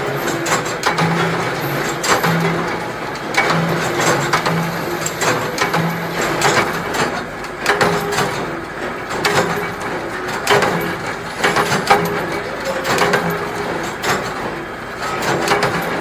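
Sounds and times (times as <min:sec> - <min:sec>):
machinery low hum: 0:00.0 - 0:07.7.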